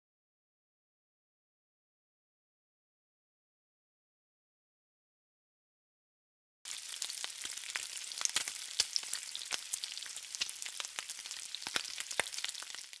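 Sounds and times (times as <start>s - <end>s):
food sizzling and popping: 6.7s - 13.0s.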